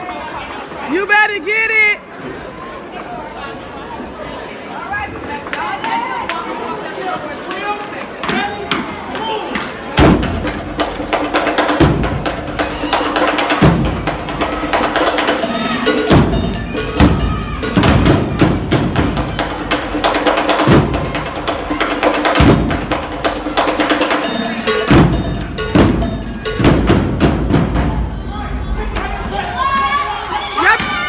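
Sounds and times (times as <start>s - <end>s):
heavy low drum hits: 10.0s - 12.8s, 13.5s - 29.3s
snare drum rapid strikes: 10.0s - 28.1s.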